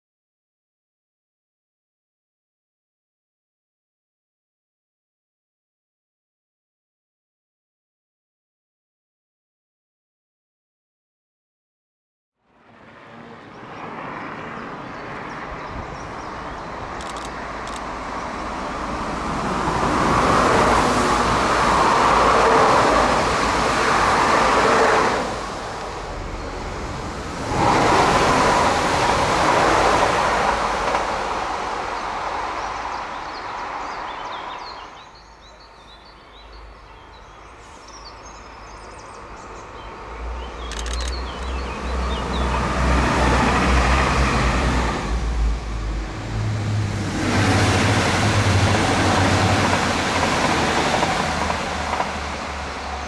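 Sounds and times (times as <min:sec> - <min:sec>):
train wheels rolling on rail: 0:15.6 - 0:34.7, 0:40.6 - 0:53.0.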